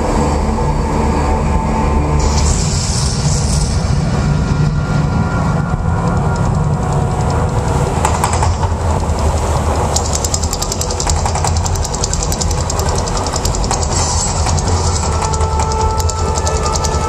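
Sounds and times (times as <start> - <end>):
deep rumble: 0.0 - 17.0
rapid crackling: 4.9 - 17.0.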